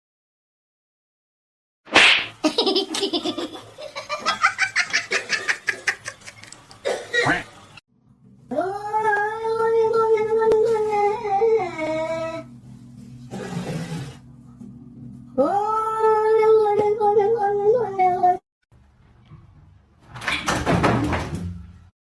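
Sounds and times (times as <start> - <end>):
person laughing hard: 2.4 - 6.5.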